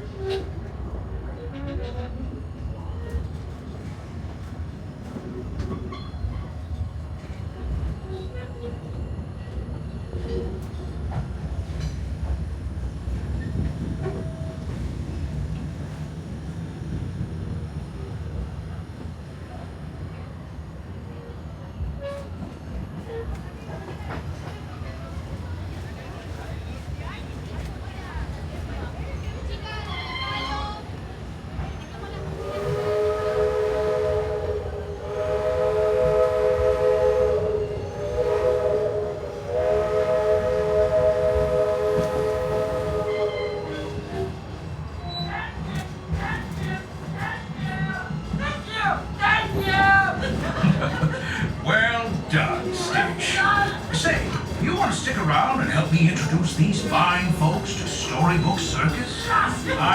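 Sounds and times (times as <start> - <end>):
train rumbling on track: 0.0 - 59.9
steam locomotive chime whistle: 32.4 - 44.0.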